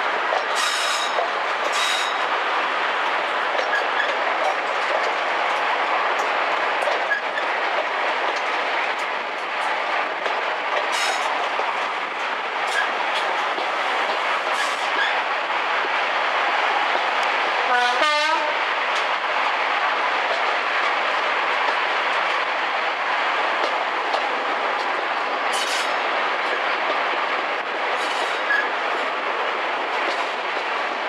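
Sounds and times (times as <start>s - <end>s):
train running noise: 0.0s - 31.0s
wheels clicking over rail joints: 3.0s - 17.4s, 23.4s - 31.0s.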